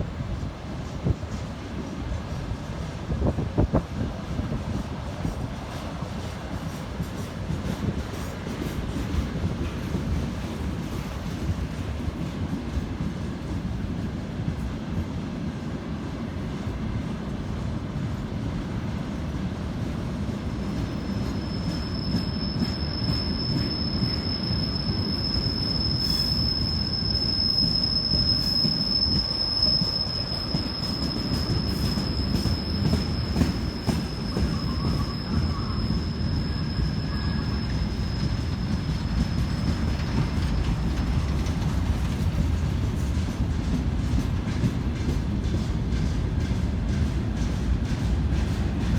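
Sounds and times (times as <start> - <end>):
train rumbling past: 0.0 - 48.9
high wheel squeal: 20.8 - 42.1.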